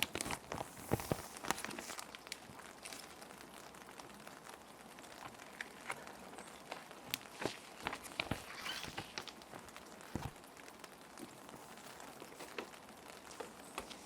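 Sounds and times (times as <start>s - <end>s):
plastic sheets crinkling: 0.0s - 14.0s
rain hiss: 0.0s - 14.0s.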